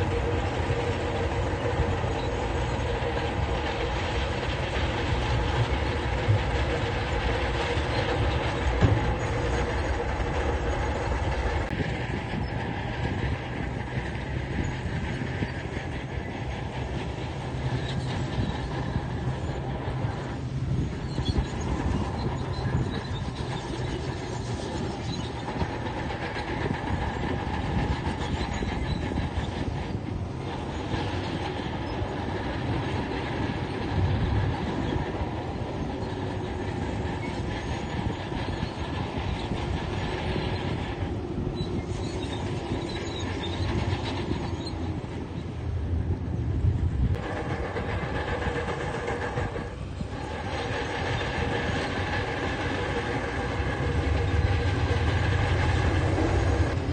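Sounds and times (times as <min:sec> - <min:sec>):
bulldozer diesel engine running: 0:00.0 - 0:56.9
steel tracks clanking: 0:00.0 - 0:56.9.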